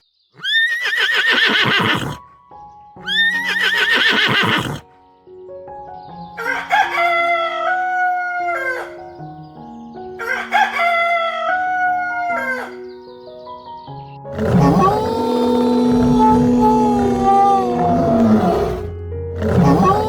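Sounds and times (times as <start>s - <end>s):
background music: 0.5s - 20.0s
rooster crowing: 6.4s - 9.0s, 10.2s - 12.8s, 14.4s - 20.0s.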